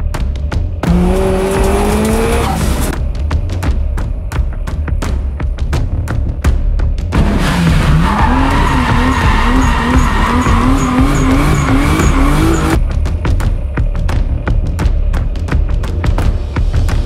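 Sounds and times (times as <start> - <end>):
music with thumping beat: 0.0 - 17.0
car engine revving: 0.8 - 3.0, 7.1 - 12.8
tyres squealing: 7.6 - 12.8.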